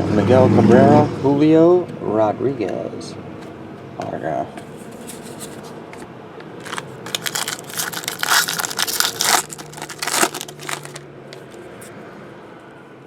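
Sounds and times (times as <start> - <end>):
foil wrapper tearing and crinkling: 6.6 - 11.6.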